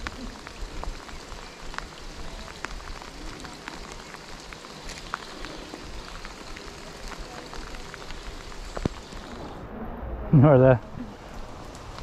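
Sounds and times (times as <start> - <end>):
raindrops tapping: 0.0 - 9.6, 10.6 - 12.0
steady rain hiss: 0.0 - 12.0.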